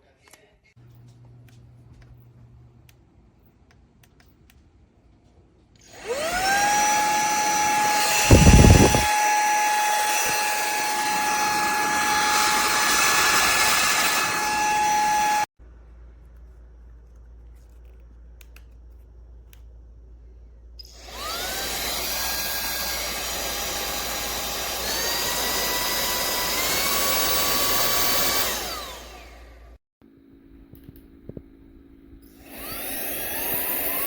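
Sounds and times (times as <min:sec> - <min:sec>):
handheld vacuum motor whining: 0:05.8 - 0:15.5, 0:20.8 - 0:29.8, 0:32.2 - 0:34.0.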